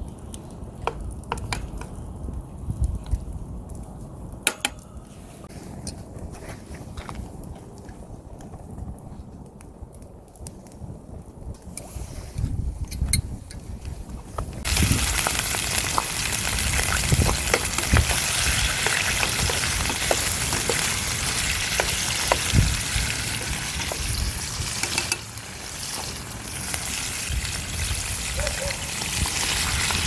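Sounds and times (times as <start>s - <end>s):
food sizzling in a pan: 14.7s - 28.3s
utensil clicking while stirring: 24.7s - 25.3s.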